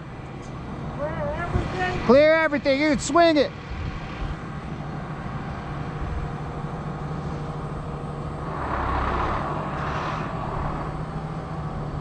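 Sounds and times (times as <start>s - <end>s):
crane engine rumbling: 0.0s - 12.0s
loud rushing sound: 8.3s - 12.0s.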